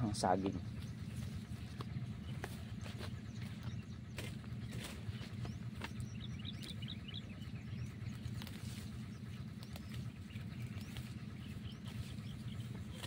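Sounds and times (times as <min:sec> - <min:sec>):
bird chirping: 0:00.0 - 0:13.0
steady low hum: 0:00.0 - 0:13.0.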